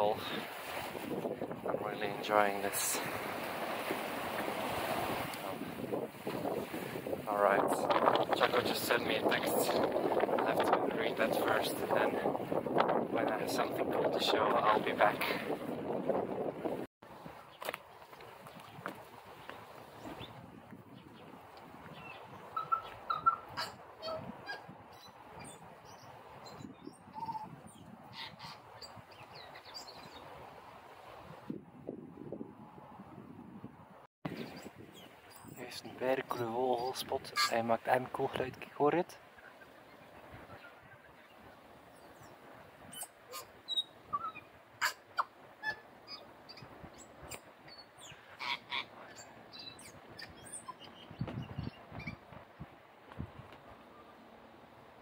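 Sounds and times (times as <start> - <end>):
birds chirping and calling: 21.9 - 30.2, 34.3 - 37.7, 42.9 - 52.2.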